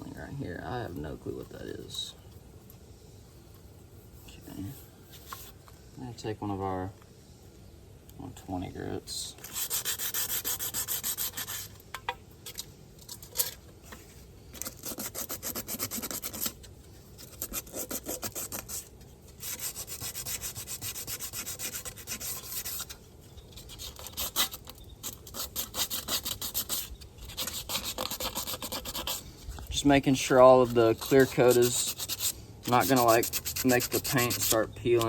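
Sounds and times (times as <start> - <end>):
sandpaper rubbing on metal rim: 9.4 - 11.8, 14.6 - 29.2, 29.8 - 35.0.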